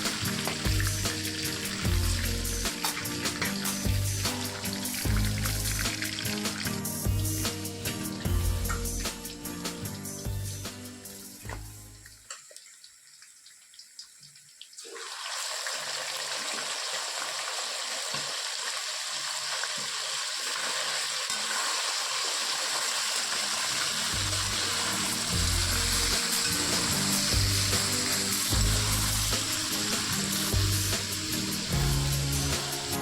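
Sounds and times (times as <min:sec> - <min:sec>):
background music with bass line: 0:00.0 - 0:12.0, 0:24.2 - 0:33.0
food sizzling in a hot pan: 0:00.0 - 0:12.0, 0:13.5 - 0:33.0.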